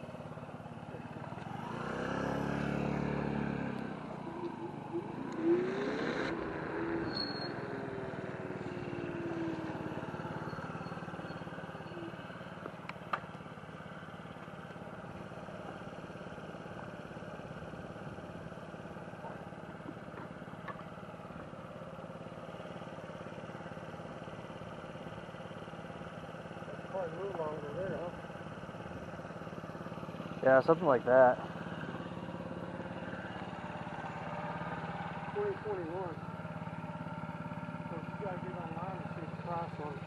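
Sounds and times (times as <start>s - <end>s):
low vehicle hum: 0.0s - 40.0s
rising and falling whine: 1.3s - 12.2s.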